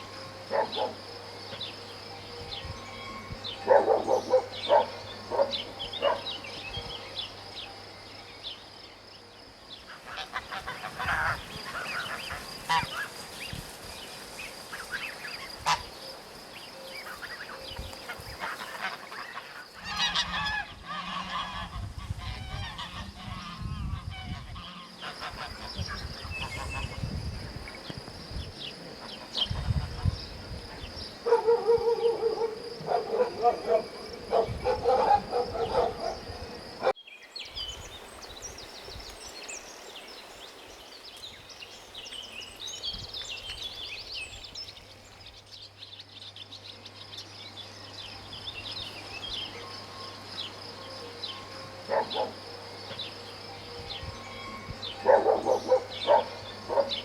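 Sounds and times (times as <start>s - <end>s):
high insect trill: 0.0s - 57.0s
loud animal calls: 31.3s - 37.0s.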